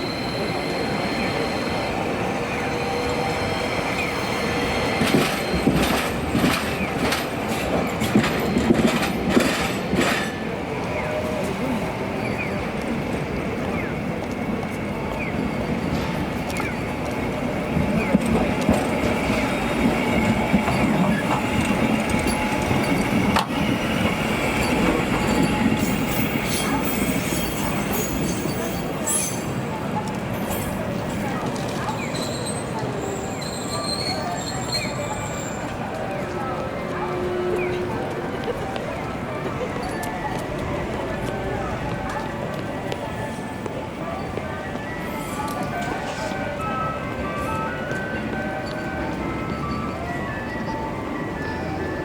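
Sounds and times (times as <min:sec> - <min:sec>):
streetcar rumbling along track: 0:00.0 - 0:52.0.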